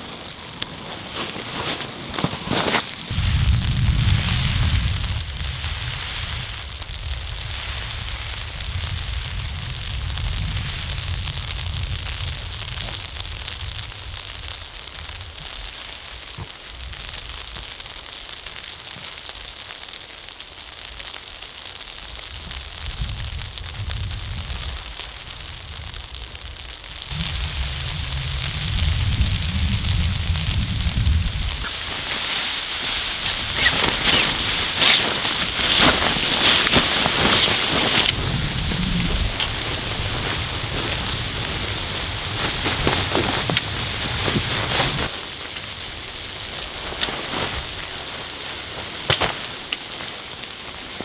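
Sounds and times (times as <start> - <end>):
wood fire crackling: 0.0 - 51.0
low rumble: 22.4 - 31.7.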